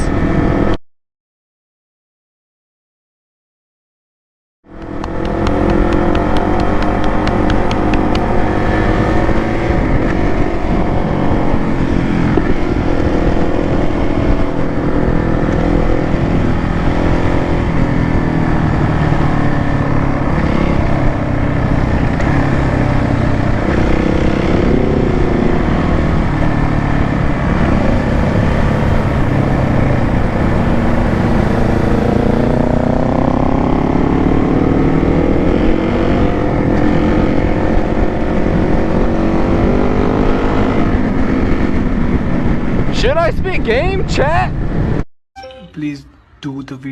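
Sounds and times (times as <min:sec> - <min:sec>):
motorcycle engine running: 0:04.7 - 0:39.6.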